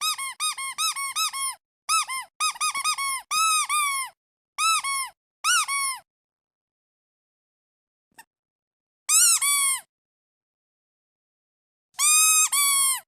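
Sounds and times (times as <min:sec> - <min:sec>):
squeaky duck toy squeaking: 0:00.0 - 0:06.1, 0:09.1 - 0:09.9, 0:12.0 - 0:13.0.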